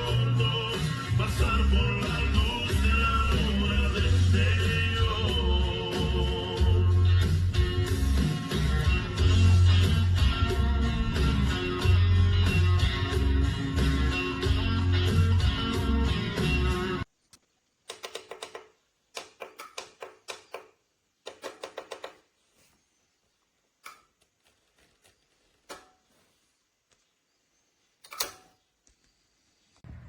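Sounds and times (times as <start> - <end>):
rapid mechanical clicking: 17.9 - 22.2.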